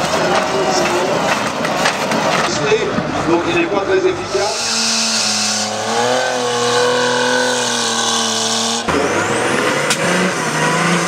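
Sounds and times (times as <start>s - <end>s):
rough noisy engine: 0.0s - 11.0s
truck engine running hard: 0.0s - 11.0s.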